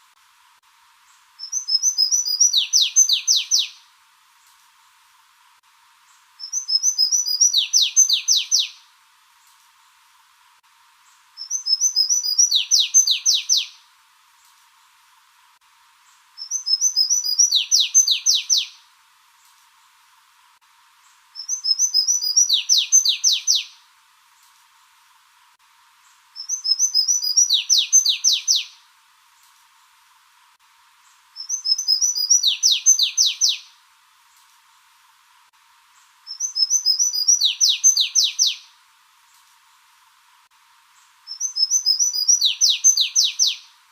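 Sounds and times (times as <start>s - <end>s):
songbird singing: 1.0s - 4.6s, 6.0s - 9.6s, 10.9s - 15.0s, 16.0s - 19.9s, 21.0s - 24.6s, 25.9s - 30.0s, 30.9s - 34.9s, 35.8s - 39.9s, 40.9s - 43.9s.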